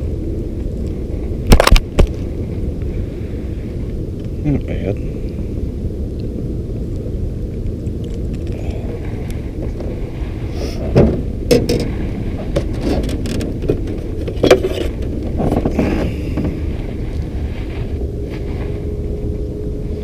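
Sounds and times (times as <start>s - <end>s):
low rumble: 0.0s - 20.0s
sharp knocks and clicks: 11.0s - 11.9s.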